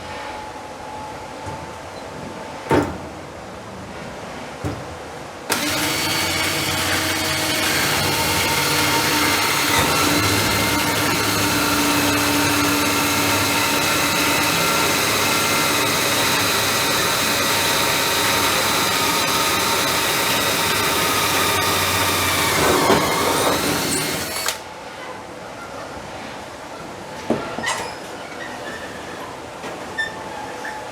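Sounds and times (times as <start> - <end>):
machine motor whining: 5.5 - 24.6.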